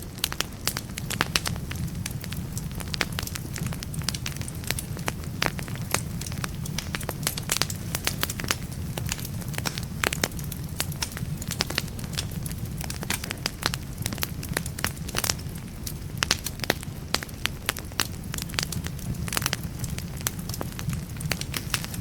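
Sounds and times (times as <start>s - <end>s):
logs crackling and popping: 0.0s - 22.0s.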